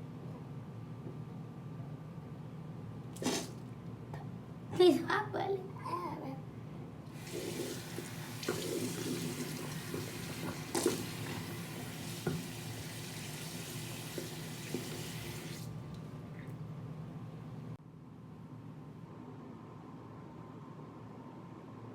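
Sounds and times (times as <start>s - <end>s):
water running: 3.2s - 3.6s, 7.1s - 16.0s.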